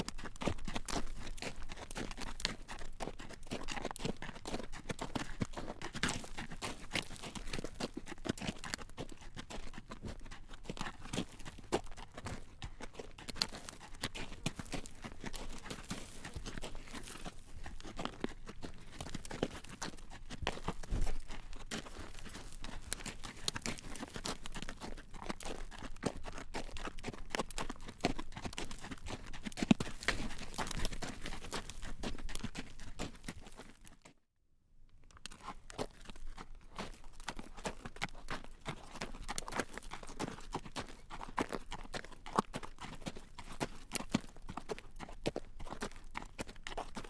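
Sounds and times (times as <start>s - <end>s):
horse hooves clip-clopping on road: 0.0s - 34.1s, 35.2s - 47.0s.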